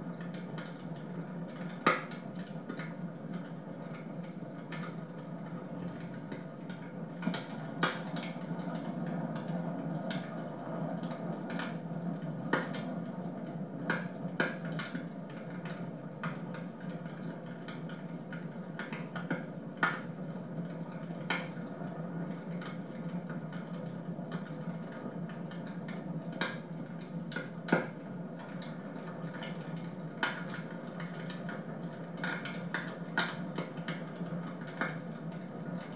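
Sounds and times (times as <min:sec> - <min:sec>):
logs crackling and popping: 0:00.1 - 0:35.9.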